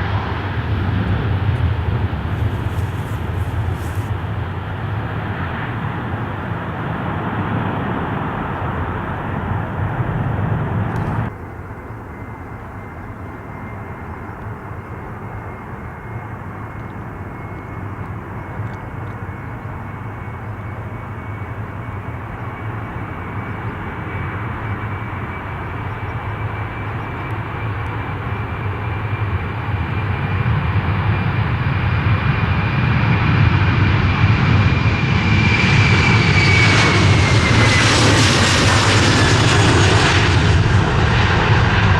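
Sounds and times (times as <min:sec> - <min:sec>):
jet airliner engines: 0:00.0 - 0:41.9.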